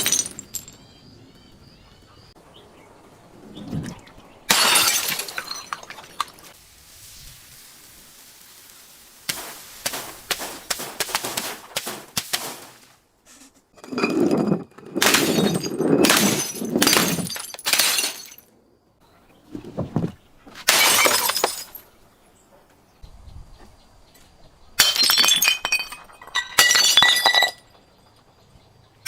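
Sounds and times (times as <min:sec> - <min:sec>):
glass breaking and crushing: 0:00.0 - 0:00.8, 0:04.5 - 0:06.6, 0:13.8 - 0:18.5, 0:20.6 - 0:21.8, 0:24.8 - 0:27.7.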